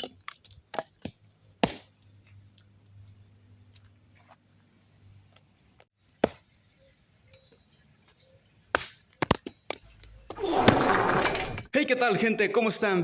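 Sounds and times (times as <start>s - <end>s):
sharp knocks and cracks: 0.0s - 1.9s, 8.7s - 9.9s.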